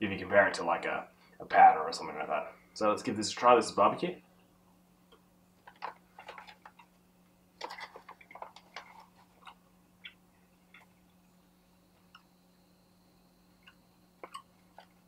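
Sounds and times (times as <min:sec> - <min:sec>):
faint steady hum: 0:00.0 - 0:15.0
plastic pouch handling: 0:07.6 - 0:09.6.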